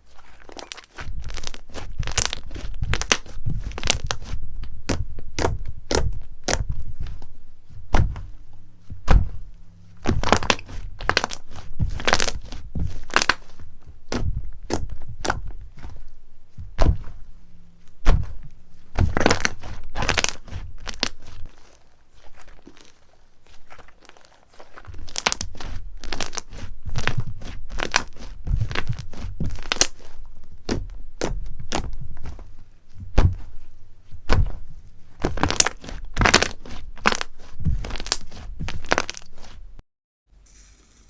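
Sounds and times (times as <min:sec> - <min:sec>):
slime popping and crackling: 0:00.0 - 0:07.2, 0:10.0 - 0:15.9, 0:18.9 - 0:32.4, 0:34.2 - 0:39.6.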